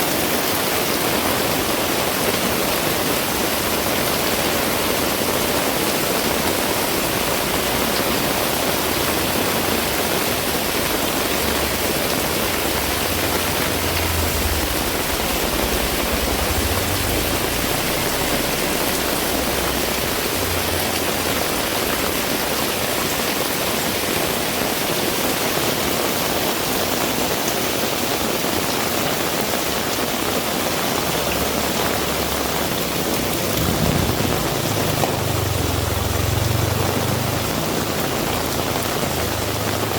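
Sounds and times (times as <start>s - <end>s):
heavy rain pouring: 0.0s - 39.9s
low rumble of vehicle approaching: 7.0s - 22.6s, 30.9s - 39.9s
wind gusts on microphone: 11.9s - 21.1s, 31.2s - 35.8s.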